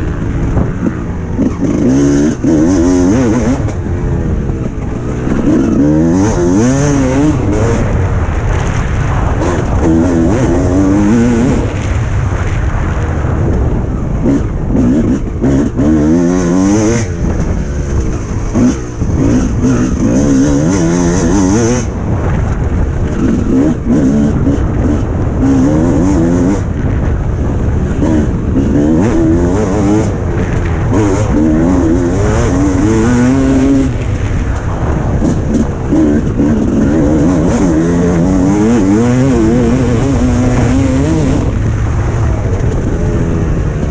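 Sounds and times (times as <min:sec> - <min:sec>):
wind buffeting on microphone: 0:00.0 - 0:43.9
motocross engine revving hard: 0:00.5 - 0:03.8, 0:04.7 - 0:08.0, 0:09.3 - 0:11.8, 0:14.2 - 0:21.9, 0:23.1 - 0:26.7, 0:28.0 - 0:34.0, 0:34.8 - 0:41.8.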